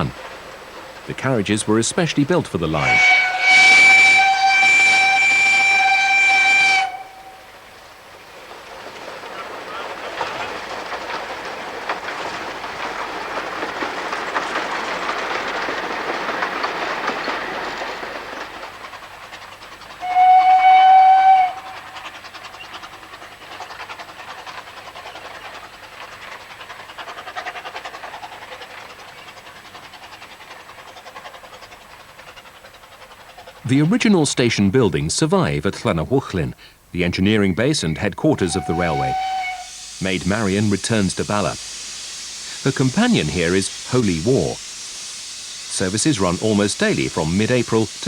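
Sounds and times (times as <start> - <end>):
steam locomotive exhaust and wheels: 0.0 - 48.0
steam whistle blast: 2.8 - 7.5, 20.0 - 21.9, 38.4 - 40.2.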